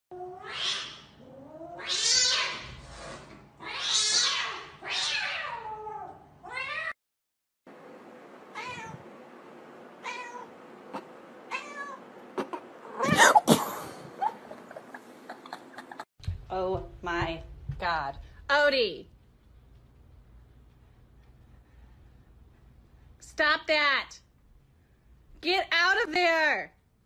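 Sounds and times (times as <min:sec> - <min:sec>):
cat meowing: 0:03.6 - 0:07.0, 0:08.6 - 0:09.0, 0:10.0 - 0:13.4.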